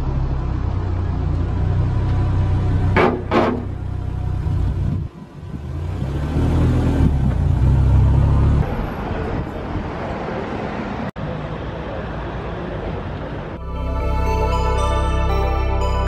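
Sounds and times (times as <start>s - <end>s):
car engine driving off: 0.0s - 9.2s.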